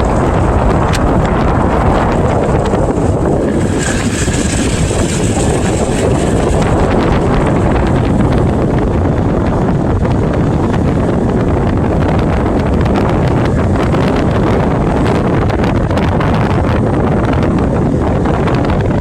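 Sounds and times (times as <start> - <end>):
low rumble of travel: 0.0 - 19.0
wind buffeting microphone: 0.0 - 19.0.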